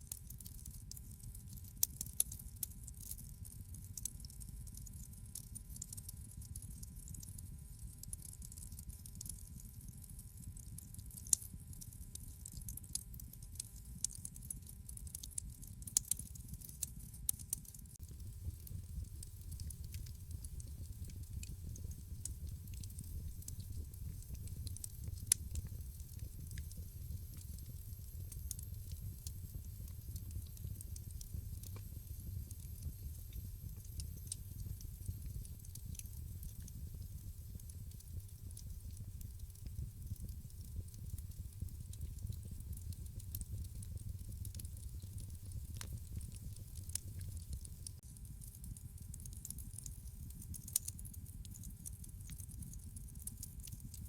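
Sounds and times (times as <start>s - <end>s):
fire snaps and pops: 0.0s - 54.0s
low rumble of flames: 17.5s - 54.0s.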